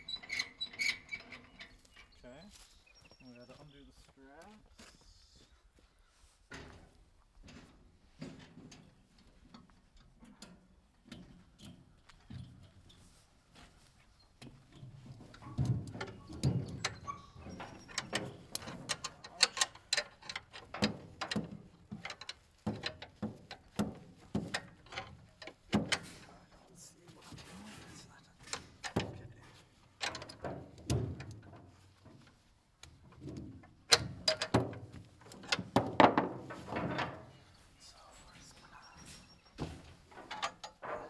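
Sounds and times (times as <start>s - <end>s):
metal clanks and knocks: 14.7s - 26.5s, 27.4s - 37.5s, 39.1s - 41.0s
ratchet straps clicking: 17.6s - 21.4s.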